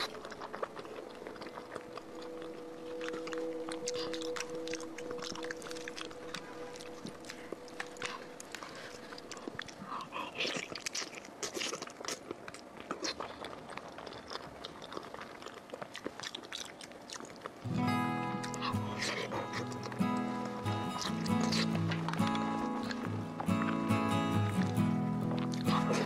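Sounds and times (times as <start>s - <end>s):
wet chewing and lip-smacking: 0.0s - 26.0s
two-note hum: 17.7s - 26.0s.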